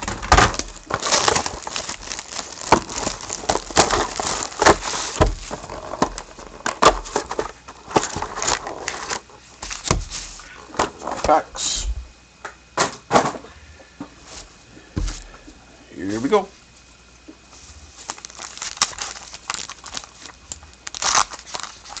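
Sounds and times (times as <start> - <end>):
plastic and cardboard crinkling: 0.0 - 11.5, 14.2 - 15.5, 17.5 - 22.0.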